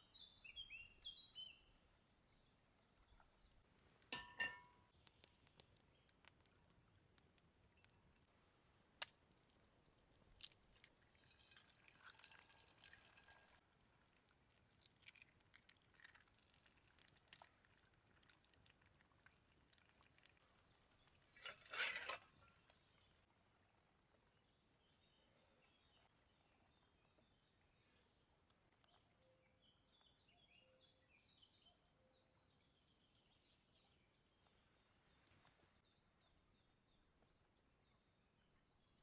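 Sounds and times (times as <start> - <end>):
eggs frying hiss: 10.4 - 13.6.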